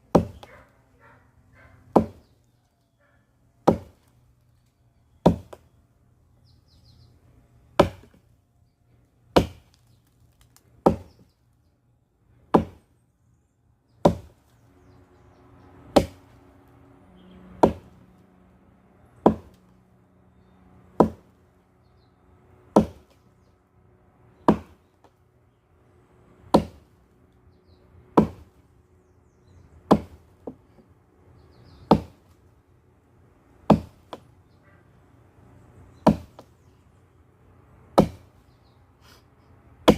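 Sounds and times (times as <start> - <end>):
axe chopping firewood: 0.1 - 0.7, 1.8 - 2.4, 3.6 - 4.1, 5.2 - 5.7, 7.7 - 8.3, 9.3 - 11.3, 12.5 - 12.9, 14.0 - 14.5, 15.9 - 16.4, 17.6 - 18.0, 19.2 - 19.6, 20.9 - 21.3, 22.7 - 23.3, 24.4 - 25.2, 26.4 - 27.0, 28.1 - 28.6, 29.8 - 30.9, 31.8 - 32.4, 33.6 - 34.3, 36.0 - 36.5, 37.9 - 38.4.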